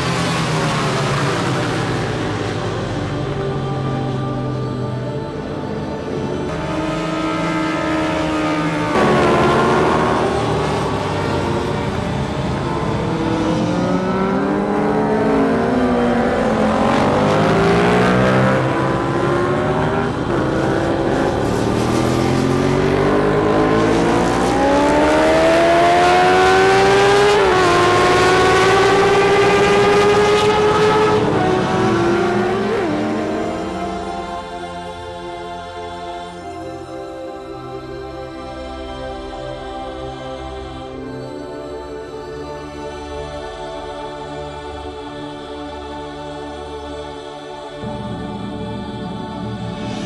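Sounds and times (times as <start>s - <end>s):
racing engines at high revs: 6.1s - 35.4s.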